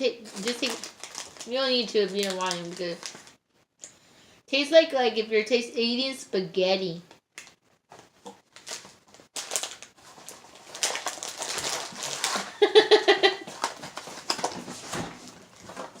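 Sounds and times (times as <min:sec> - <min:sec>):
crunching and chewing snacks: 0:00.3 - 0:01.5, 0:07.4 - 0:12.6.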